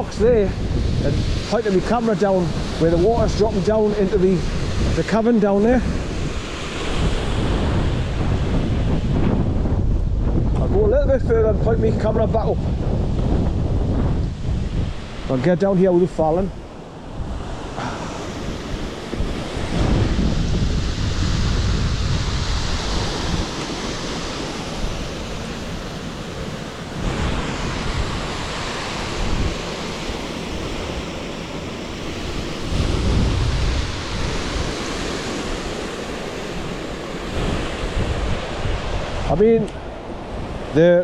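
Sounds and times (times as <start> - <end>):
wind buffeting microphone: 0.0 - 41.0
waterfall rushing: 17.7 - 40.0.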